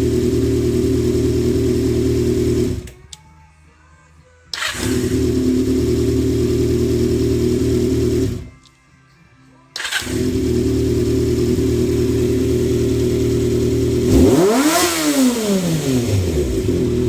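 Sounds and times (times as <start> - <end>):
motorcycle engine idling: 0.0 - 3.0, 4.6 - 8.5, 10.0 - 17.0
throttle blip revving: 13.8 - 16.8.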